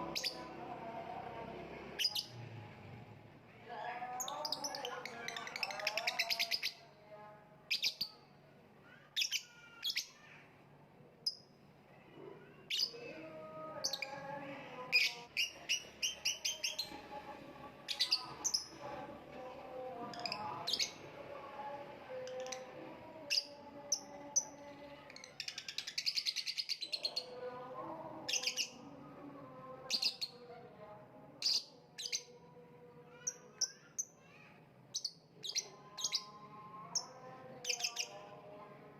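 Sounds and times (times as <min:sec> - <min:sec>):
bird chirping: 0:37.0 - 0:38.2.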